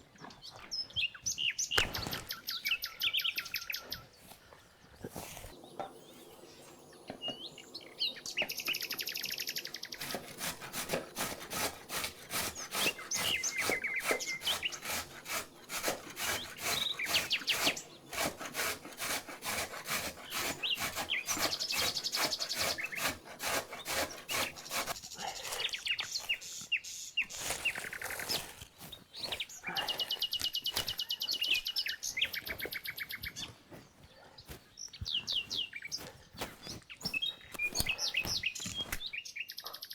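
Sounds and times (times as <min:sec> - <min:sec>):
small birds chirping and trilling: 0:00.0 - 0:39.9
rhythmic scraping strokes: 0:08.3 - 0:25.0.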